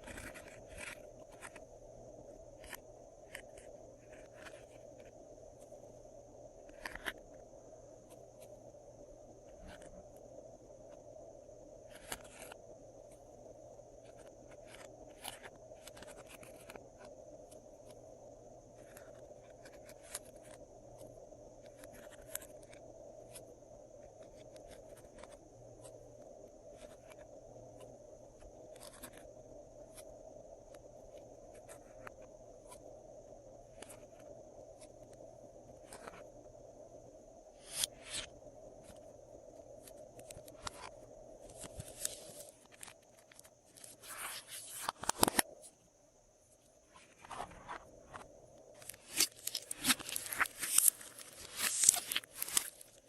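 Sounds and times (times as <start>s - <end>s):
steady electrical hum: 0.0s - 53.0s
slime scraping and sticky clicks: 48.8s - 53.0s.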